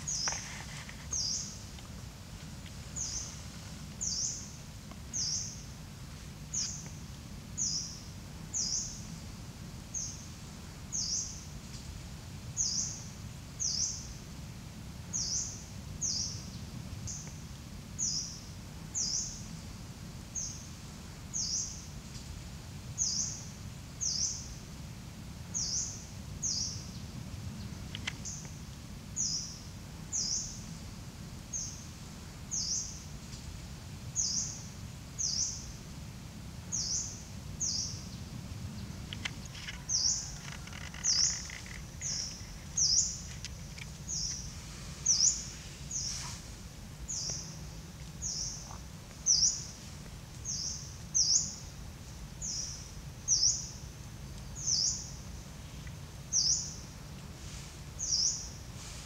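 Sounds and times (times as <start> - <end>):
bird chirping: 36.7 - 46.2.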